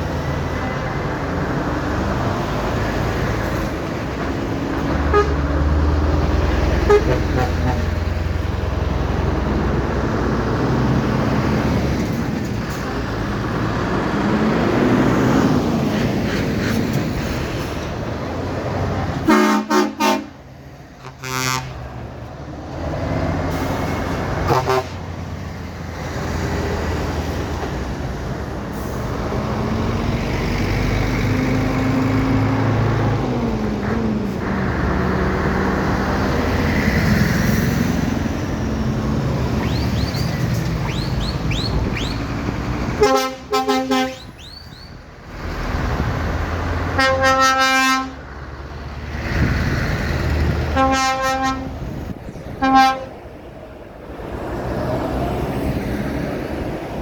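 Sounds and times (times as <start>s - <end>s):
truck horn blasts: 5.0s - 5.6s, 6.8s - 8.2s, 19.2s - 20.4s, 21.0s - 21.9s, 24.4s - 25.1s, 42.9s - 44.5s, 46.9s - 48.3s, 50.7s - 53.2s
lorry engines running: 20.2s - 57.0s.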